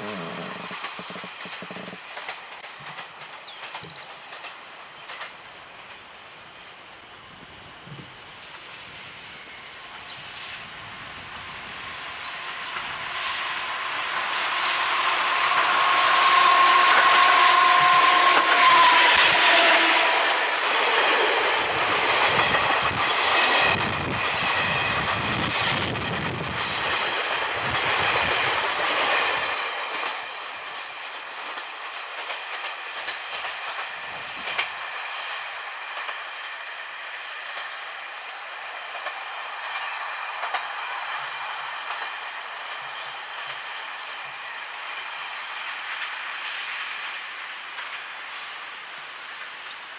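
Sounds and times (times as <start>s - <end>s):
train cars rattling over rail joints: 0.0s - 6.2s, 15.0s - 38.0s
train horn blast: 14.9s - 20.4s.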